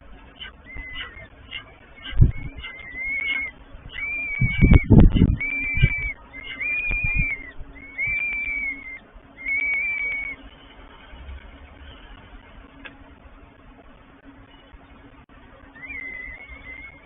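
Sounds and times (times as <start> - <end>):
wind buffeting microphone: 0.0 - 14.2
falcon calls: 0.2 - 10.4, 15.7 - 17.0.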